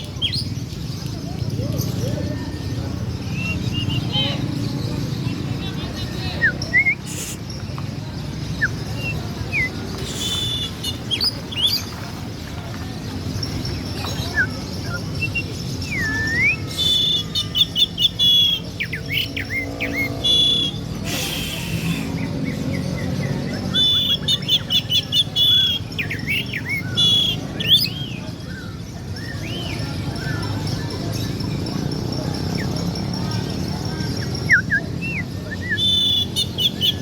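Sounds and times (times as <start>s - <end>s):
songbird singing: 0.0s - 37.0s.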